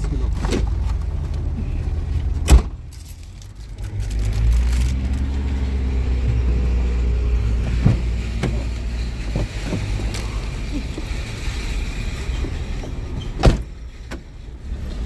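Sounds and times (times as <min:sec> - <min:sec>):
car engine running: 0:00.0 - 0:15.0
car door shutting: 0:02.2 - 0:02.9, 0:05.1 - 0:10.4, 0:13.4 - 0:14.3.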